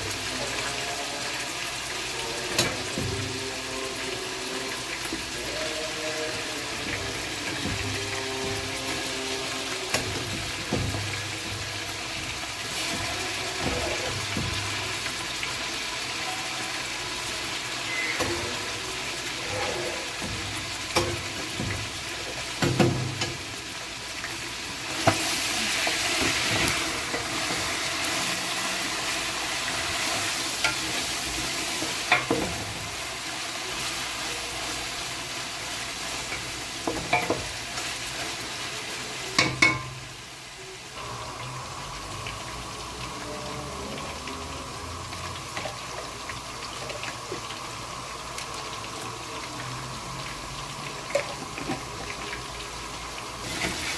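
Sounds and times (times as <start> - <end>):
food sizzling in a pot: 0.0 - 53.9.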